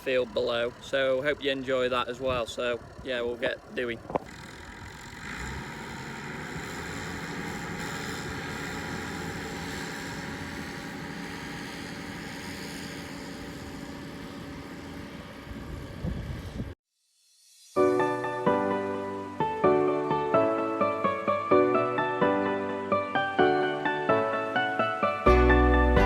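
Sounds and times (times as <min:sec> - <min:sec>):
tractor engine running: 0:00.0 - 0:16.8.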